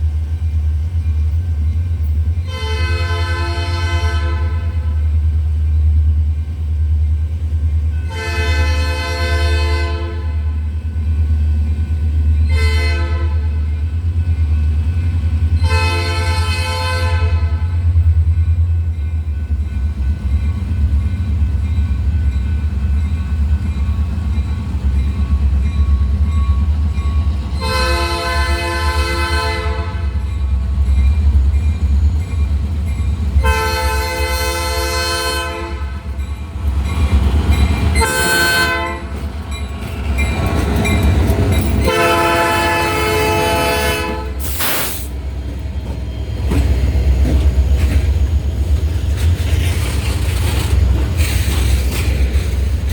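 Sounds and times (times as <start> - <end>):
low train rumble: 0.0 - 52.9
locomotive horn blasts: 2.5 - 5.0, 8.0 - 10.5, 12.4 - 13.6, 15.6 - 17.9, 27.6 - 30.2, 33.4 - 36.2, 38.0 - 39.2, 41.8 - 44.6.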